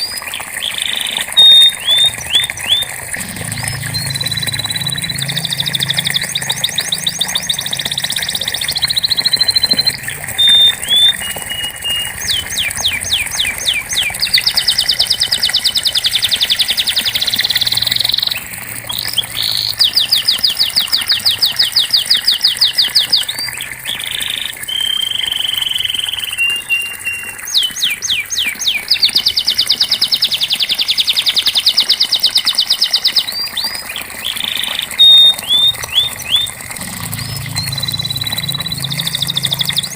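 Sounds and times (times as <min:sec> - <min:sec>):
canary singing trills: 0:00.0 - 0:39.9
short chips and whistled notes: 0:01.3 - 0:12.8.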